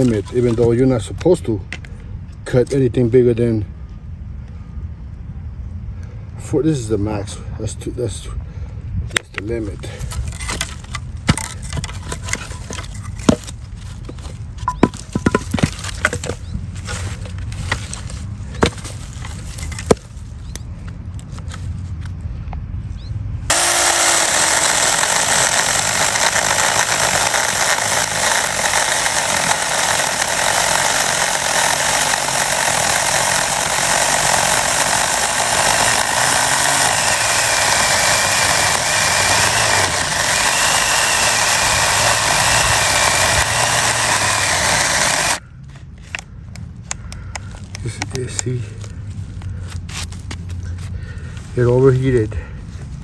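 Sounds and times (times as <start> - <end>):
chainsaw cutting a log: 0.0 - 0.7, 10.3 - 13.6, 14.7 - 16.4, 18.6 - 20.0, 23.5 - 45.4.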